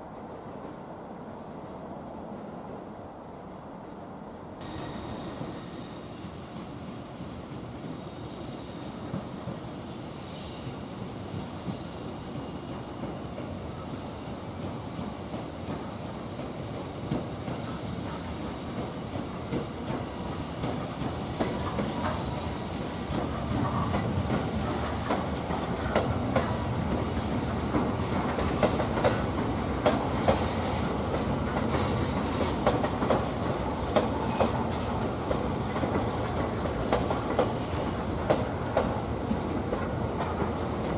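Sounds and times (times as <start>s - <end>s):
electric train running on track: 4.6s - 40.9s
thin high squeal: 4.7s - 17.1s, 22.8s - 24.7s.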